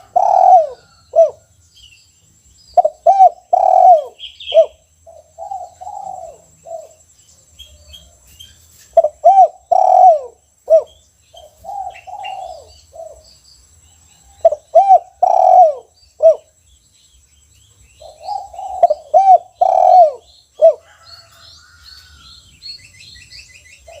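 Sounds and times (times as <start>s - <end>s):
dove cooing: 0.0s - 1.5s, 2.8s - 7.0s, 8.9s - 13.3s, 14.3s - 16.6s, 18.0s - 21.4s
small birds chirping: 0.0s - 24.0s.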